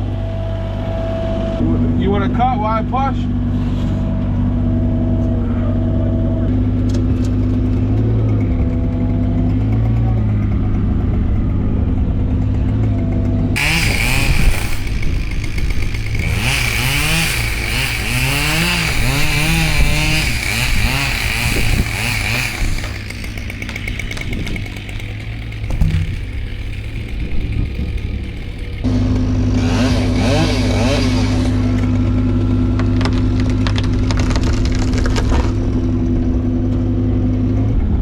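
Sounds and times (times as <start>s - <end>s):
excavator engine running: 3.2s - 38.0s
chainsaw cutting wood: 12.6s - 36.2s.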